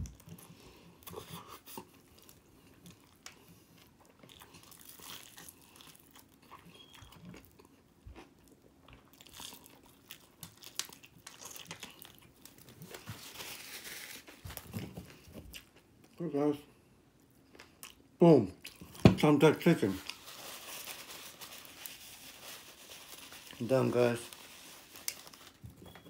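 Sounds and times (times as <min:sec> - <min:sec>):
crunching of fried chicken: 0:00.0 - 0:14.7, 0:19.6 - 0:25.6
paper napkin rustling: 0:12.8 - 0:15.0, 0:19.7 - 0:25.6.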